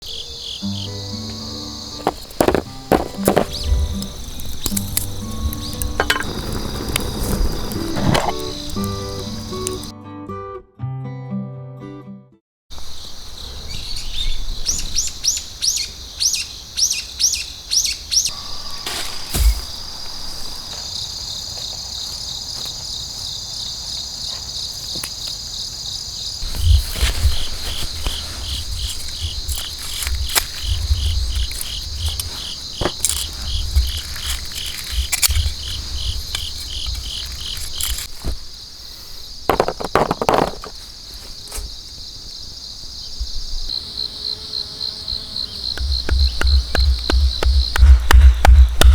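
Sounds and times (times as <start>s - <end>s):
bird calls: 0.0s - 9.9s, 12.8s - 21.1s, 45.1s - 48.9s
crickets trilling: 0.0s - 9.9s, 12.7s - 48.9s
low rumbles and knocks: 45.8s - 48.9s.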